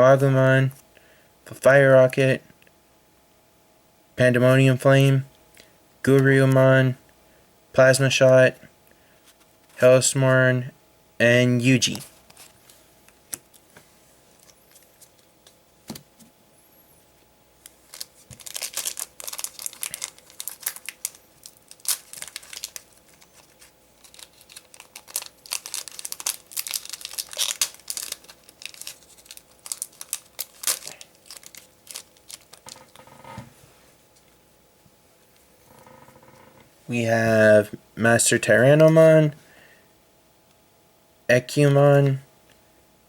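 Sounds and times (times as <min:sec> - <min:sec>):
foil wrapper crinkling and tearing: 0:17.6 - 0:33.0.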